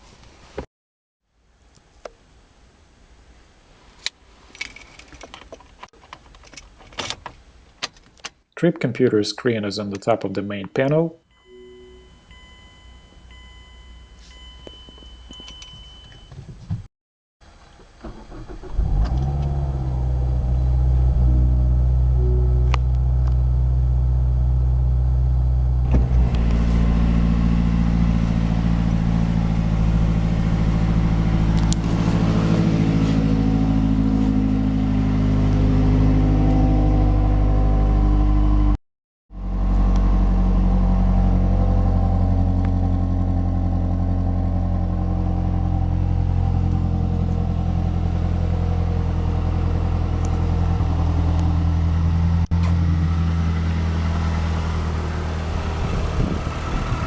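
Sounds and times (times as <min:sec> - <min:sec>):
car engine idling: 0:18.1 - 0:36.0, 0:39.4 - 0:57.0.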